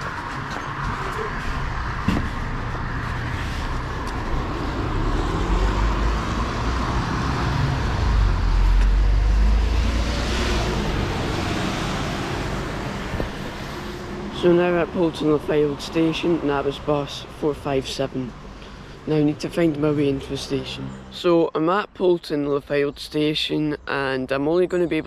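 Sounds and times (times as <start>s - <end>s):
bus engine running: 0.0s - 18.6s
road noise: 0.0s - 25.0s.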